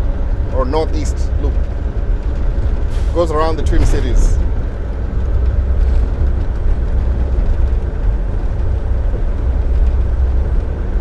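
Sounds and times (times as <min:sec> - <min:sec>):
truck engine and road drone: 0:00.0 - 0:11.0.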